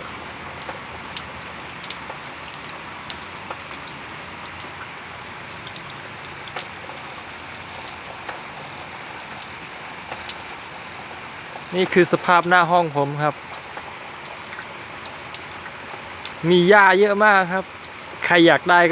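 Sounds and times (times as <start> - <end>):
heavy rain falling: 0.0 - 18.9
raindrops tapping on surfaces: 0.0 - 18.9.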